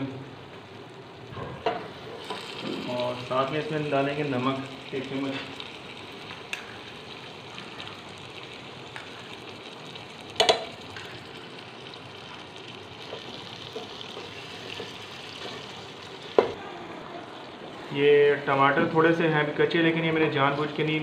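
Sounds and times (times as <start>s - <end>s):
food sizzling in oil: 0.0s - 21.0s.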